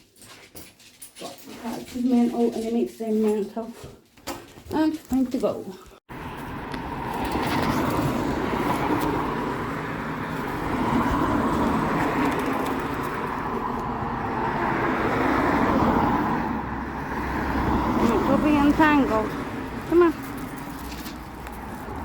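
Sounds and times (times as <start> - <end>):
passing cars: 6.1 - 22.0.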